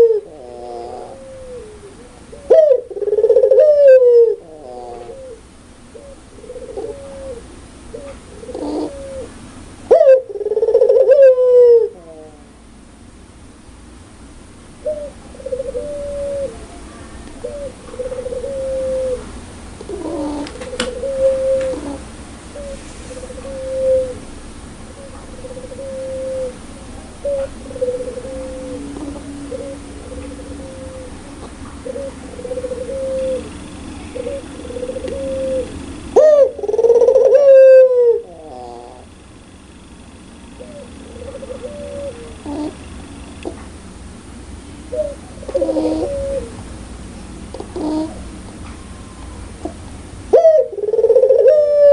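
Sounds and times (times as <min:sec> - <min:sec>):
dove cooing: 0:00.0 - 0:12.6, 0:14.8 - 0:43.7, 0:44.8 - 0:51.9
dove laughing call: 0:00.0 - 0:12.6, 0:14.8 - 0:39.2, 0:40.4 - 0:43.7, 0:44.8 - 0:46.7, 0:47.5 - 0:51.9.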